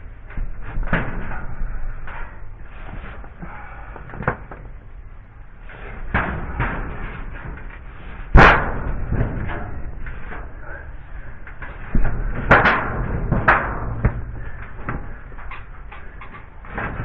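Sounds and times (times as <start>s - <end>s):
knocks and thumps: 11.5s - 17.0s.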